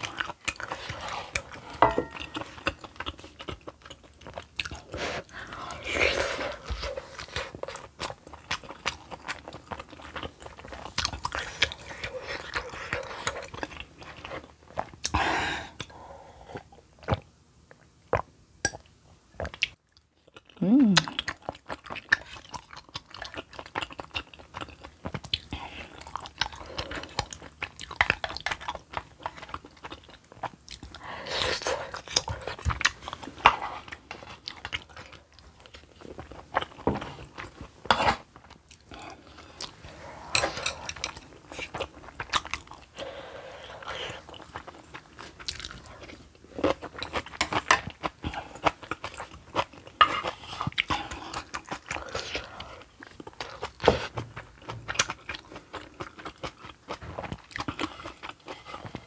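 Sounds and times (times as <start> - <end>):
close-miked chewing: 0.0 - 15.9, 19.4 - 59.0.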